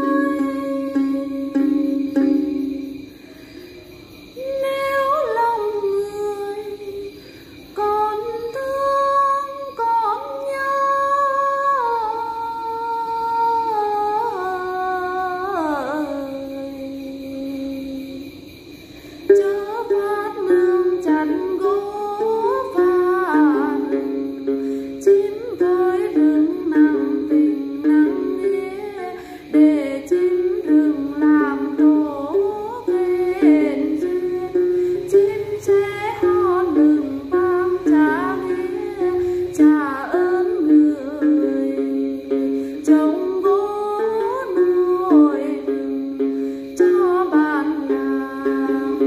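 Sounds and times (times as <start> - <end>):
plucked long-necked lute melody: 0.0 - 3.2, 19.3 - 49.0.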